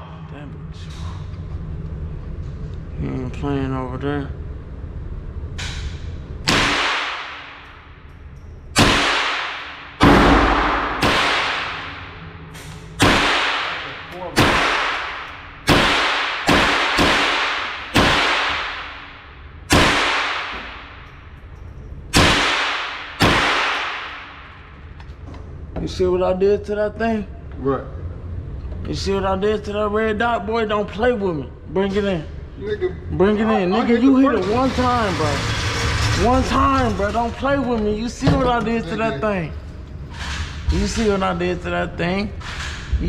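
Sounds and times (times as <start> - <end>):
gunshots with reverberating tail: 6.5 - 7.8, 8.8 - 12.3, 13.0 - 21.1, 22.1 - 24.7.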